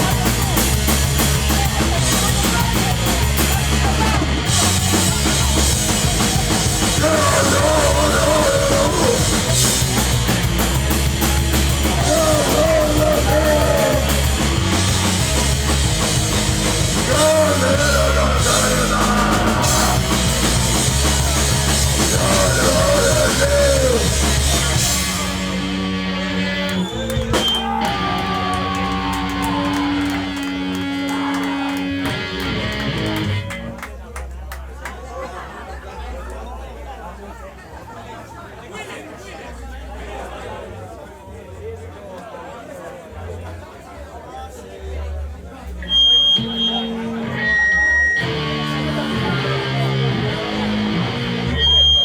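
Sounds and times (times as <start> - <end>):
drum kit: 0.0 - 33.6
distorted guitars and bass: 0.0 - 33.8, 45.8 - 52.0.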